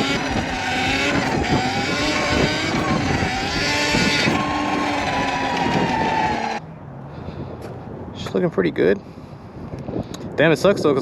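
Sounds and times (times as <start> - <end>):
electric motor whine: 0.0 - 6.6
steady rushing noise: 0.0 - 6.6.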